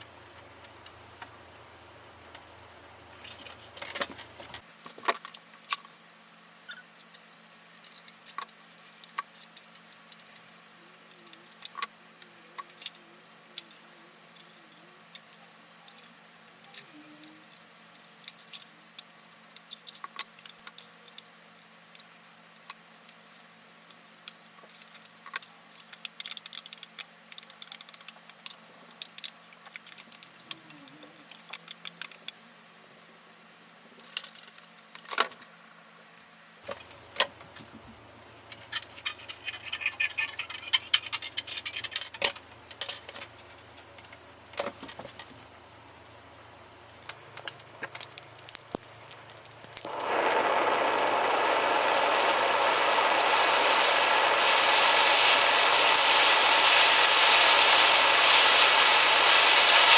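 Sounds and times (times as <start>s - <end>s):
small metal parts clicking and jingling: 38.5s - 43.4s, 47.0s - 49.9s.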